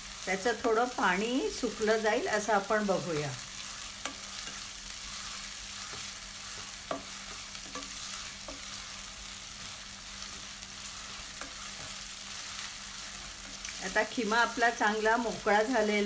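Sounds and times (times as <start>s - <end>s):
mince and onion frying in oil: 0.0s - 16.0s
spatula scraping and tapping pan: 3.6s - 9.0s, 9.6s - 13.8s.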